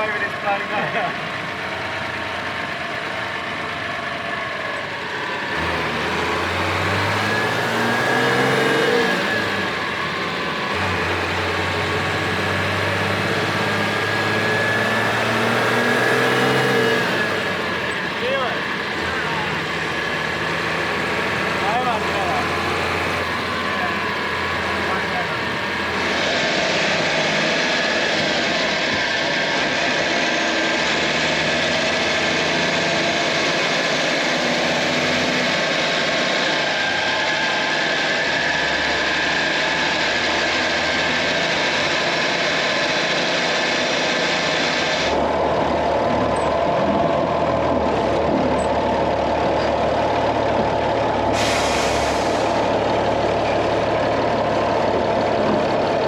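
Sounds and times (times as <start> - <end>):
truck diesel engine idling: 0.0 - 56.0
loud hiss: 51.3 - 52.7.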